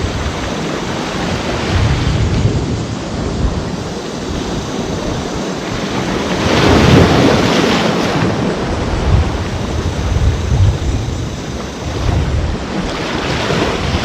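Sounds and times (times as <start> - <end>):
low rumble of sea: 0.0 - 14.0
wave breaking: 0.0 - 14.0
wind buffeting microphone: 0.0 - 14.0.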